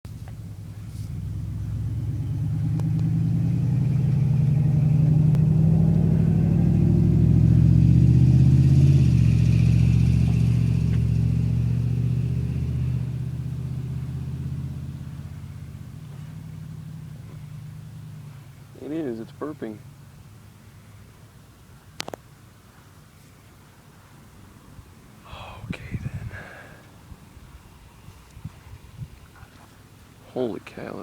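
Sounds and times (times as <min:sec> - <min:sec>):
loud low rumble: 0:25.3 - 0:26.6.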